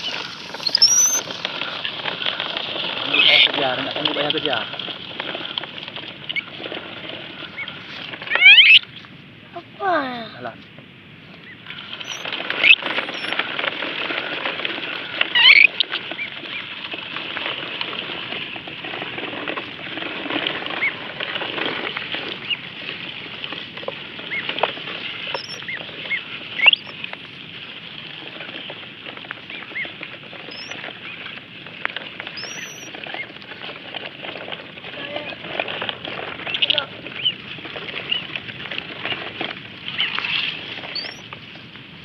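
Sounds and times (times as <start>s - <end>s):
ducklings peeping: 0.0s - 4.7s, 6.2s - 6.6s, 7.2s - 9.7s, 11.4s - 13.5s, 15.0s - 16.7s, 20.7s - 21.0s, 22.4s - 22.6s, 24.1s - 27.1s, 29.4s - 31.4s, 32.2s - 33.5s, 36.4s - 41.3s.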